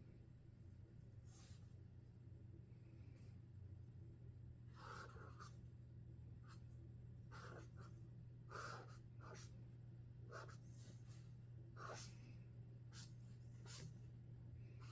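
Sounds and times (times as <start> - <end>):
marker scratching on paper: 4.8 - 5.6, 7.3 - 7.9, 8.5 - 9.5, 10.3 - 11.1, 11.8 - 12.1, 12.9 - 13.9.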